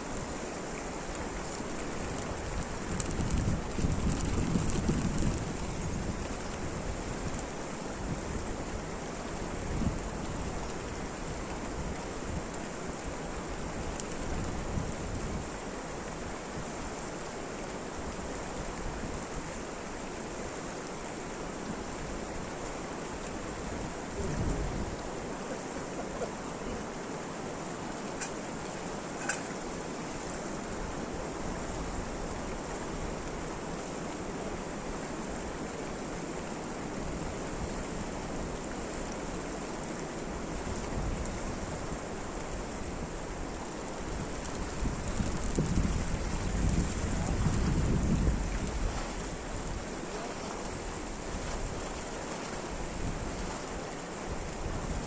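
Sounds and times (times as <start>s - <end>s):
rain falling: 0.0s - 55.0s
sharp click: 29.2s - 29.6s.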